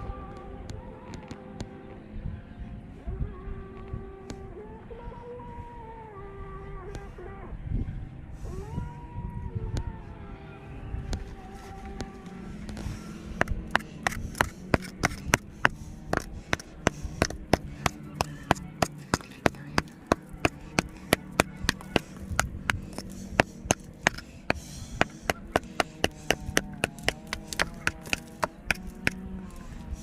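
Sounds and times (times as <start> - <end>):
chopping wood: 16.2 - 29.2.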